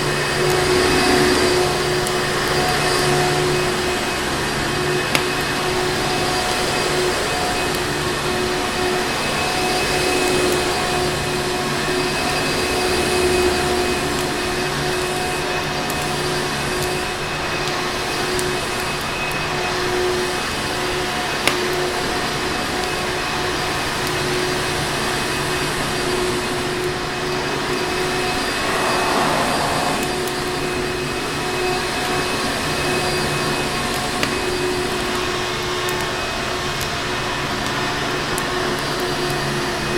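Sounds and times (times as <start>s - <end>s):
vacuum cleaner running: 0.0s - 9.2s, 24.6s - 30.9s.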